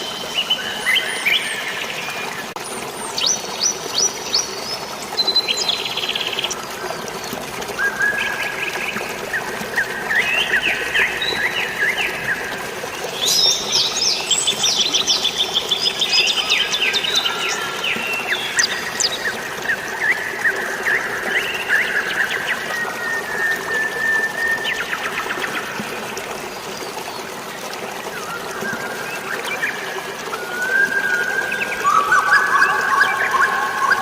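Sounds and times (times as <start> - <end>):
flowing water: 0.0 - 34.0.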